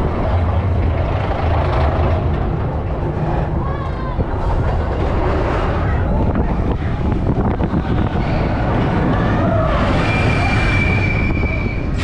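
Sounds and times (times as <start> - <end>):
roller coaster rumbling on track: 0.0 - 12.0
wind buffeting microphone: 0.0 - 12.0
high wheel squeal: 7.7 - 12.0.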